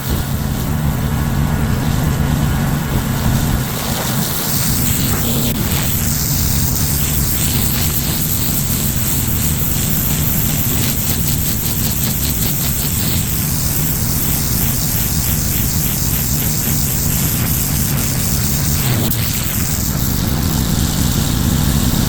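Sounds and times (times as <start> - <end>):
pressure washer engine running: 0.0 - 22.0
water spraying onto concrete: 0.0 - 22.0.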